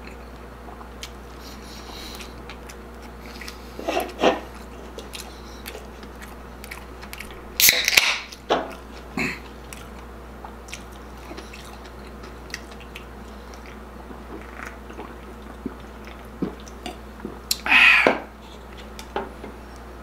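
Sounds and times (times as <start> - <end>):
chewing and swallowing: 0.0 - 7.5, 8.3 - 17.6
low steady hum: 0.0 - 20.0.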